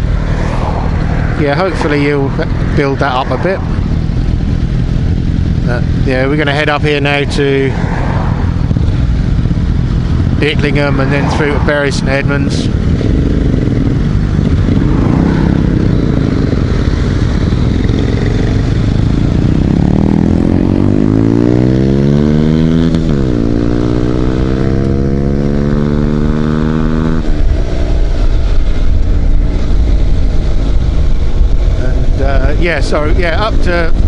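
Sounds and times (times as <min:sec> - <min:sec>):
motorcycle engine revving: 0:00.0 - 0:34.0
wind rush on microphone: 0:06.9 - 0:34.0.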